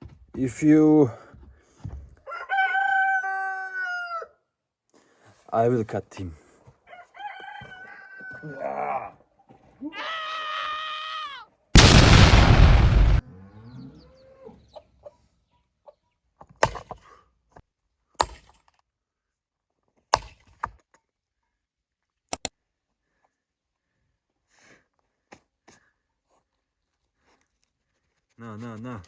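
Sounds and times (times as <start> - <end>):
animal harsh cry: 9.8 - 11.5.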